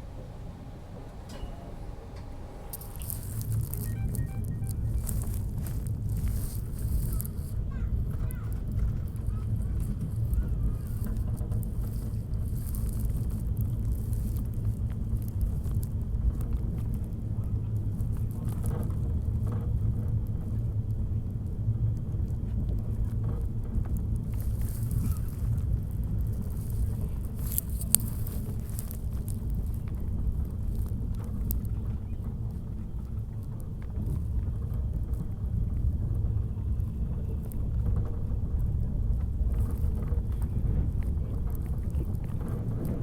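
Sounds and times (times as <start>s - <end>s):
passenger train rumbling: 0.0s - 43.0s
train clicks and rattles: 0.0s - 43.0s.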